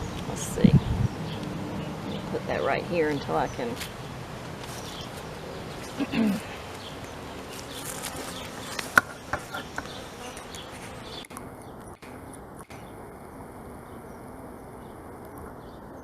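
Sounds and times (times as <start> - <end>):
honeybees buzzing: 0.0 - 15.8
sharp clicks of hive tools: 4.6 - 12.9.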